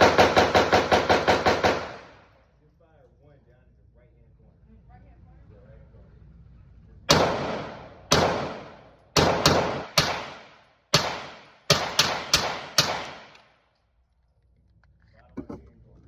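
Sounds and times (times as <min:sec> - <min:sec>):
pistol shots echoing: 0:00.0 - 0:02.2, 0:07.1 - 0:13.5.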